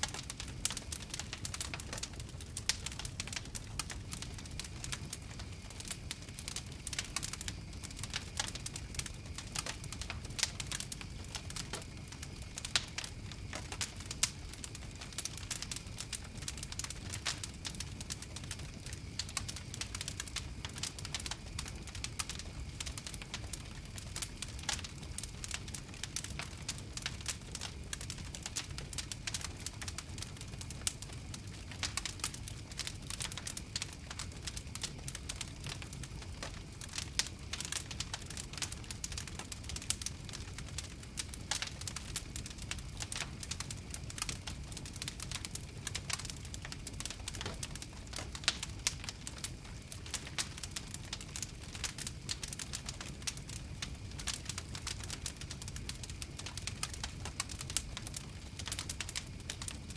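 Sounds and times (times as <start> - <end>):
fire crackling and popping: 0.0 - 59.9
low rumble of flames: 0.0 - 59.9.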